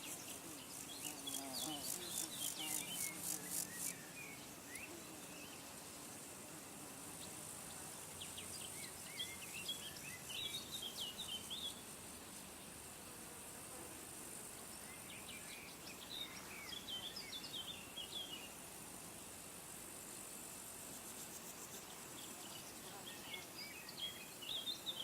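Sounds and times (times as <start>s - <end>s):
small birds chirping: 0.0s - 5.8s
high insect hum: 0.0s - 25.0s
high pulsing insect buzz: 0.0s - 25.0s.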